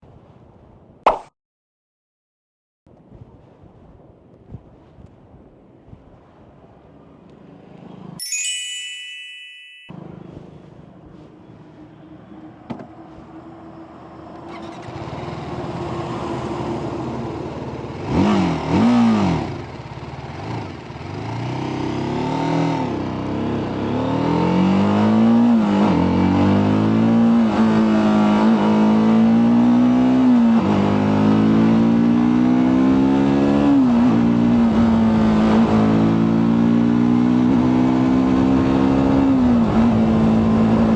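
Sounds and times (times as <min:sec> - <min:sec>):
short chime: 0:08.2 - 0:10.0
motorcycle engine revving: 0:13.2 - 0:40.9.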